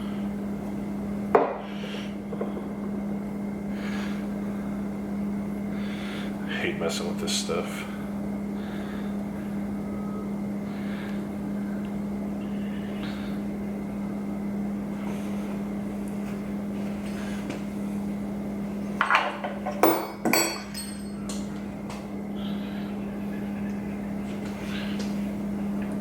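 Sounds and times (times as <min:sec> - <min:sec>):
low hum: 0:07.7 - 0:19.0, 0:20.4 - 0:26.0
metal tools clanking: 0:19.0 - 0:21.4.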